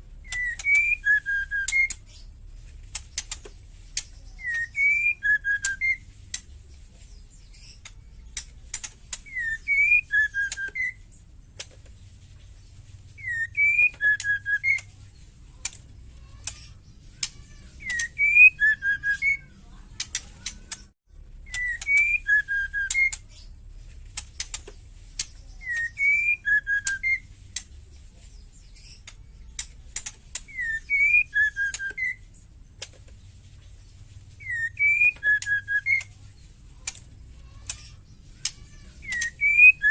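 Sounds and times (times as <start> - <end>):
bird whistled phrase: 0.2 - 2.0, 4.3 - 6.0, 9.2 - 11.0, 13.2 - 14.9, 17.2 - 20.9, 21.5 - 23.2, 25.5 - 27.3, 30.5 - 32.3, 34.4 - 36.1, 37.5 - 39.9
bird dry clicking calls: 0.2 - 39.9.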